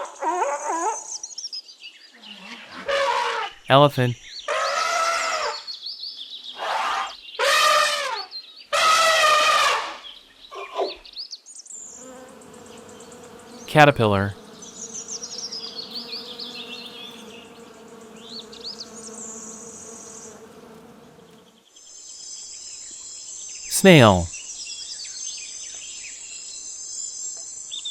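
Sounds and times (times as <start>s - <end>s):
insect buzzing: 11.8s - 13.7s, 14.4s - 21.6s
faint bird chirping: 14.5s - 20.4s.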